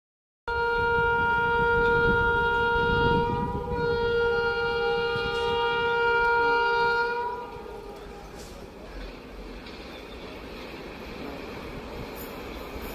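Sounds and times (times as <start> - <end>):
train horn blast: 0.5 - 8.6
low train rumble: 0.5 - 12.9.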